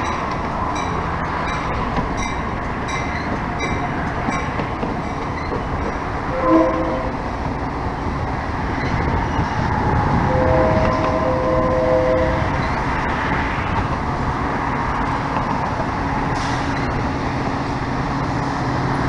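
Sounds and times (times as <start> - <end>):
train rumbling: 0.0 - 19.0
train horn blast: 6.2 - 7.3, 10.0 - 12.8.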